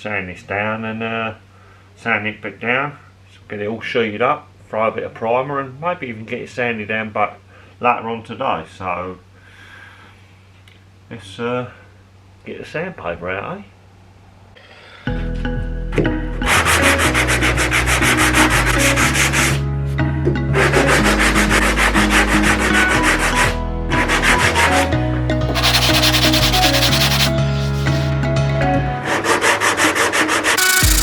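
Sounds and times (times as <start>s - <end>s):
background music with bass: 15.1s - 29.0s, 30.6s - 31.0s
sandpaper rasping: 24.2s - 28.1s, 29.3s - 31.0s.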